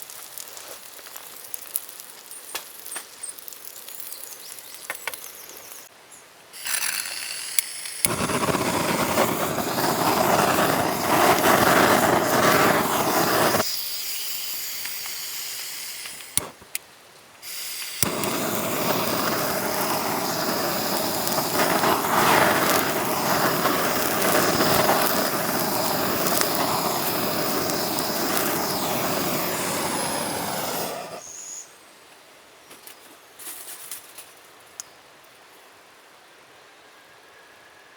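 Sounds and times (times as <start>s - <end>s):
gas flame hissing: 6.6s - 16.8s, 17.4s - 31.3s.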